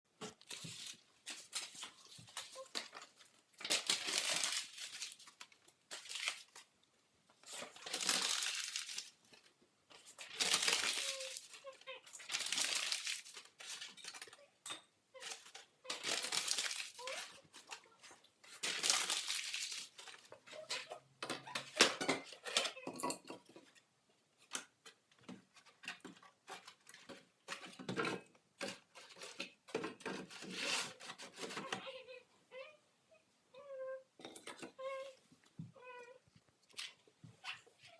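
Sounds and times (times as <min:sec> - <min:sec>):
paper crumpling and tearing: 0:00.3 - 0:06.7, 0:07.4 - 0:09.2, 0:09.9 - 0:14.3, 0:15.2 - 0:20.9.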